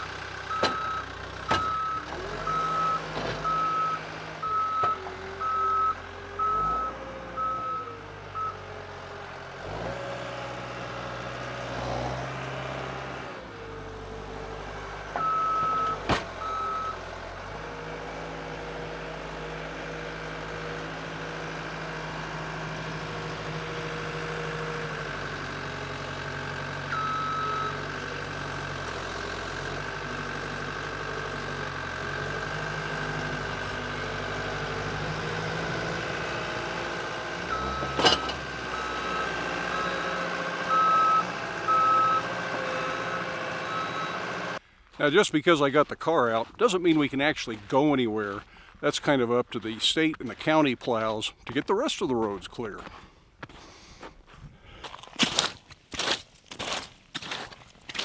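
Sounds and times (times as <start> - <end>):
skid steer engine revving: 0.0 - 45.2
backup alarm beeping: 15.2 - 17.0, 26.9 - 27.8, 37.5 - 44.3.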